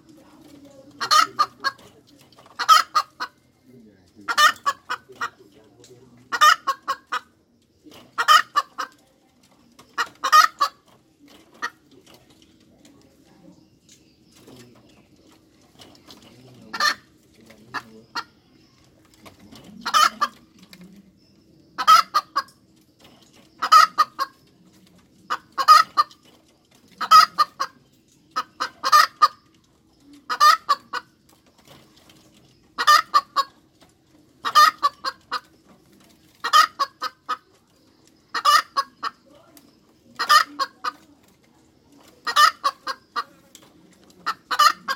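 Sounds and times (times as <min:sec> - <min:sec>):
hen cackling: 0:00.9 - 0:03.5, 0:04.2 - 0:05.5, 0:06.3 - 0:07.4, 0:08.1 - 0:09.0, 0:09.8 - 0:10.9, 0:16.7 - 0:17.1, 0:19.7 - 0:20.6, 0:21.8 - 0:22.6, 0:23.6 - 0:24.4, 0:25.3 - 0:26.2, 0:27.0 - 0:27.8, 0:28.4 - 0:29.5, 0:30.2 - 0:31.1, 0:32.8 - 0:33.6, 0:34.4 - 0:35.5, 0:36.4 - 0:37.5, 0:38.3 - 0:39.2, 0:40.1 - 0:41.0, 0:42.2 - 0:43.4, 0:44.2 - 0:44.9.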